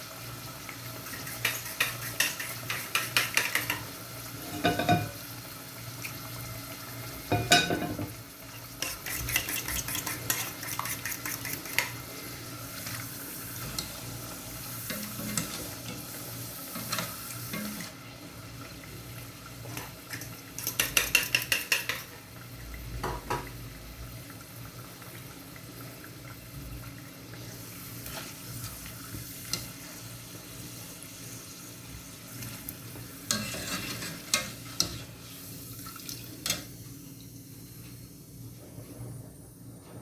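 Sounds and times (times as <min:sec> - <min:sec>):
food sizzling in a pan: 0:00.0 - 0:40.0
utensil scraping and knocking pan: 0:01.1 - 0:05.2, 0:08.8 - 0:12.0.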